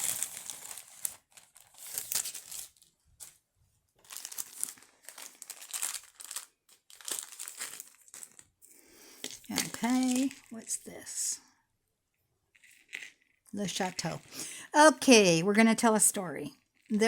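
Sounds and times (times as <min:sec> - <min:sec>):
packaging crinkling and rustling: 0:00.0 - 0:08.6, 0:09.2 - 0:11.0.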